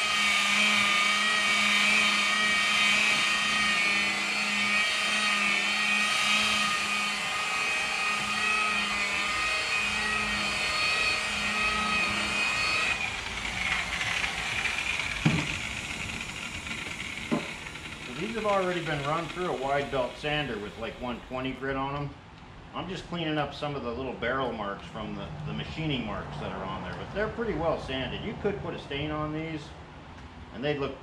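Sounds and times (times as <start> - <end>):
electric sander on wood: 0.0 - 21.6.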